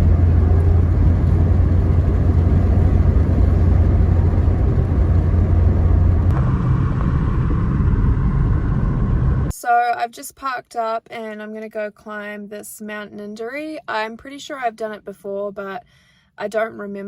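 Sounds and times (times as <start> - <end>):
car engine rumbling: 0.0 - 9.5.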